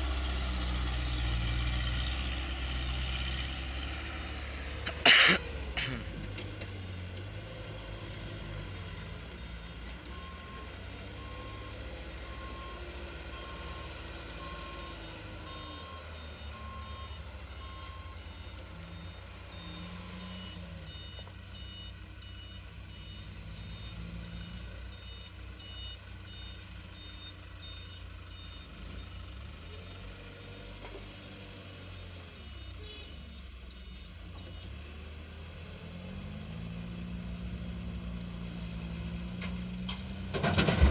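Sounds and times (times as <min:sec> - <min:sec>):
truck engine running: 0:00.0 - 0:40.9
reversing alarm beeping: 0:09.4 - 0:29.2, 0:31.9 - 0:34.8.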